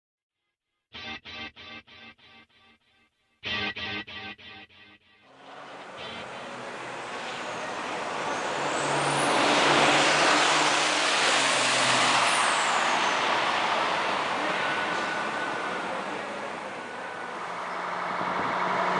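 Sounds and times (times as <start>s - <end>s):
racing trucks passing: 5.3s - 18.9s.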